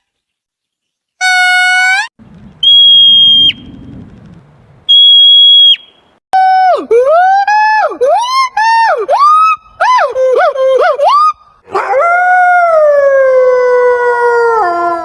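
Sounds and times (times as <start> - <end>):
high whistles dipping: 2.5 - 3.9, 4.8 - 6.2.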